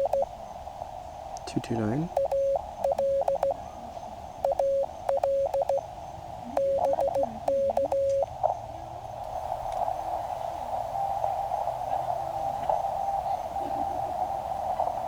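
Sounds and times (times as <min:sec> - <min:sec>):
morse code tone: 0:00.0 - 0:00.3, 0:02.1 - 0:03.6, 0:04.4 - 0:05.8, 0:06.5 - 0:08.3
receiver hiss: 0:00.0 - 0:15.0.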